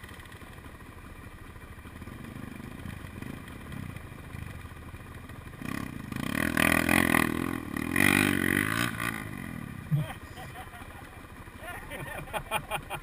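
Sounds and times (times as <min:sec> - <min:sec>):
dirt bike engine revving: 0:01.9 - 0:04.7, 0:05.5 - 0:13.0.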